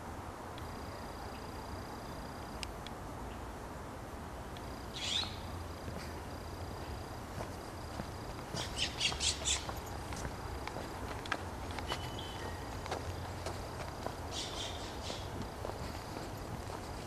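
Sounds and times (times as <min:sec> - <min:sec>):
harsh squawking bird calls: 0:04.9 - 0:05.5, 0:08.6 - 0:09.8, 0:14.3 - 0:15.4.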